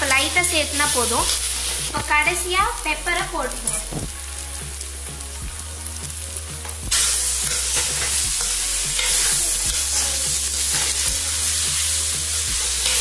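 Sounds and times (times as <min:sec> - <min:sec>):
food sizzling in a metal pan: 0:00.0 - 0:13.0.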